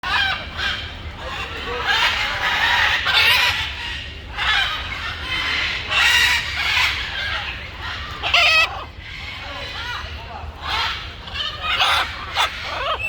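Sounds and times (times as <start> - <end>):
chickens calling: 0.0 - 13.0.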